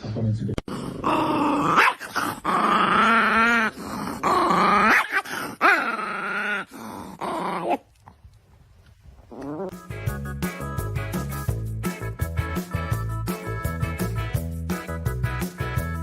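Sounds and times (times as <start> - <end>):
dog whining and growling: 0.7 - 8.0, 9.2 - 9.8.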